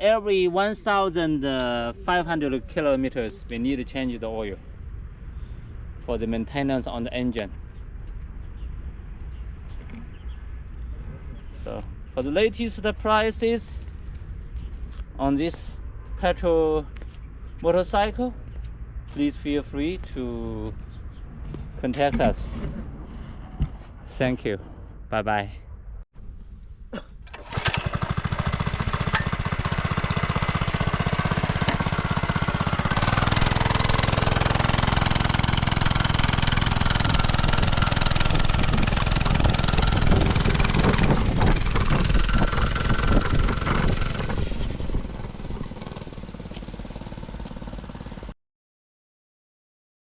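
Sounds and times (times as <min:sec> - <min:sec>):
minibike engine running: 0:27.3 - 0:48.3.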